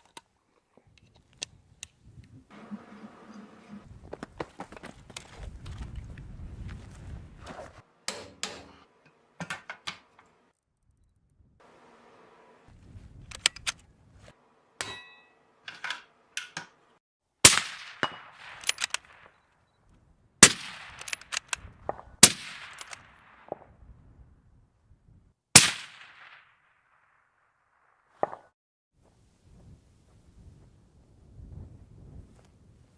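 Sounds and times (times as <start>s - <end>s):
rifle bolt metallic clicks: 13.3s - 13.9s, 18.4s - 19.4s, 20.8s - 21.6s, 22.6s - 23.1s
rifle shots with ringing tail: 20.4s - 21.2s.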